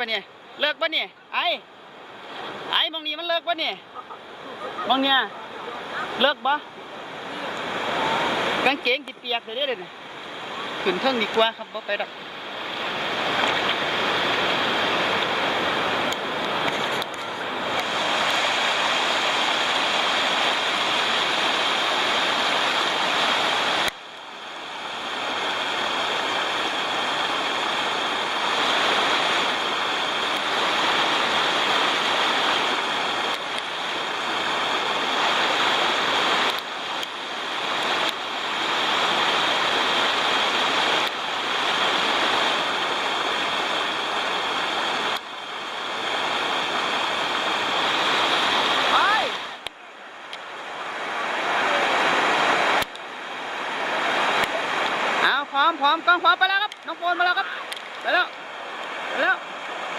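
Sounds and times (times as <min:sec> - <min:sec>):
waterfall rushing over rock: 0:00.0 - 0:59.9.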